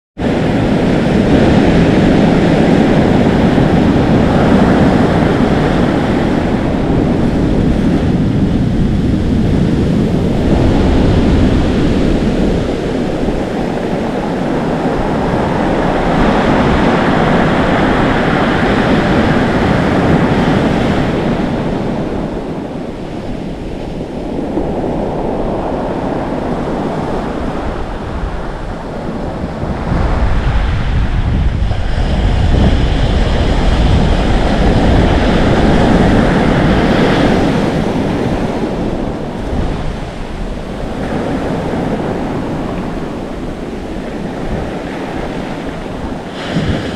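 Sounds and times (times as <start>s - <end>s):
ocean waves crashing on shore: 0.2s - 46.9s
wind on microphone: 0.2s - 46.9s.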